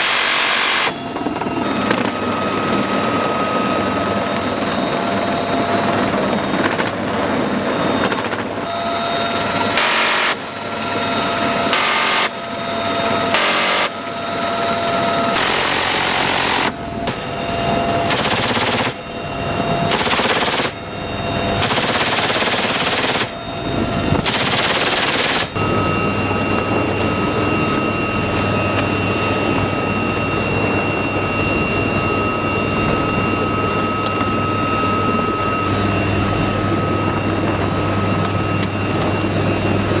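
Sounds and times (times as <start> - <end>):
helicopter drone: 0.0 - 40.0
machine-gun bursts: 9.7 - 10.6, 11.7 - 12.4, 13.3 - 14.0, 15.4 - 17.2, 18.1 - 19.1, 19.9 - 23.4, 24.2 - 25.6.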